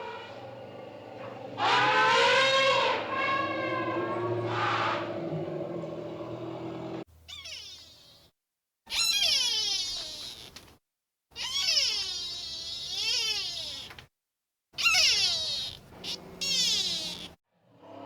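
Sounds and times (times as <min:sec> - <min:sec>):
animal high calls sliding down: 0:01.5 - 0:05.2, 0:08.9 - 0:10.5, 0:14.8 - 0:17.4.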